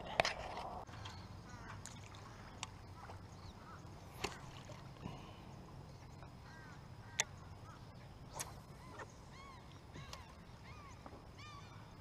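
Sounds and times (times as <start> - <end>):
bird calling in arched notes: 6.1 - 12.0.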